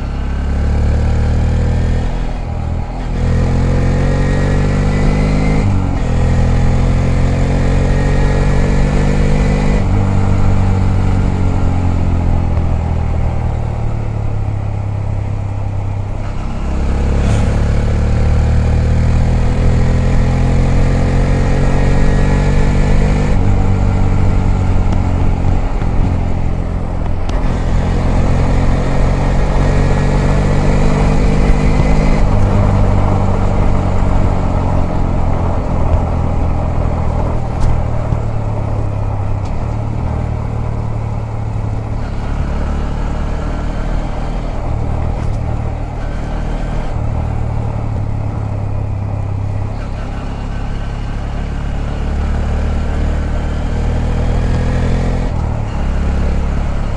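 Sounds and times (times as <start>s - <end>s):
motorcycle engine accelerating: 0.0s - 56.9s
wind noise: 19.0s - 40.2s.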